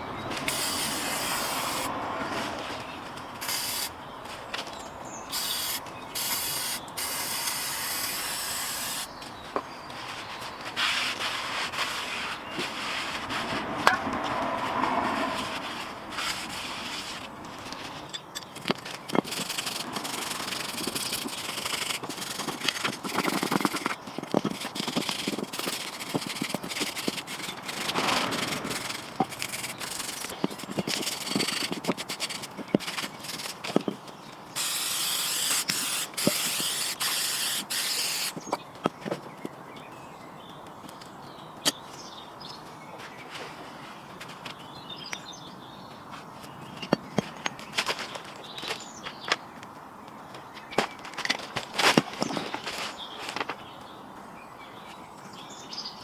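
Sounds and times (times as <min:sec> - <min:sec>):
scraping and rubbing strokes: 0:00.3 - 0:02.8, 0:09.8 - 0:34.0, 0:34.6 - 0:38.6
aerosol spray hissing: 0:00.5 - 0:01.9, 0:05.4 - 0:09.1, 0:34.6 - 0:38.3.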